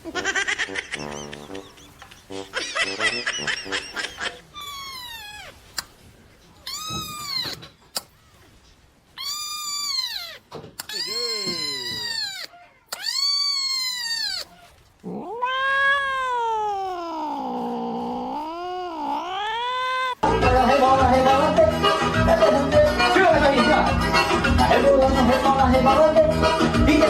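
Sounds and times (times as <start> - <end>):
cat yowling: 4.5 - 5.7, 6.6 - 8.5, 9.2 - 20.2
music: 20.2 - 27.0.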